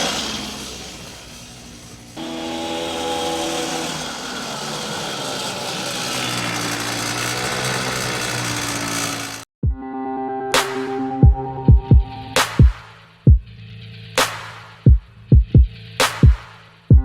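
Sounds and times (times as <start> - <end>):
small motor buzzing: 0.0 - 9.5.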